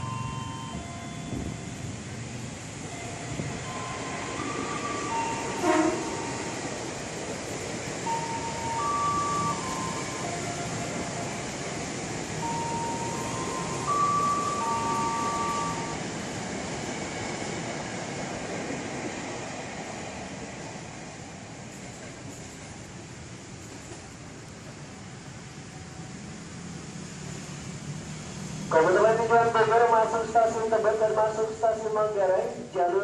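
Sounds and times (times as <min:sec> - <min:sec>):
train wheels rolling on rails: 0:00.0 - 0:31.6.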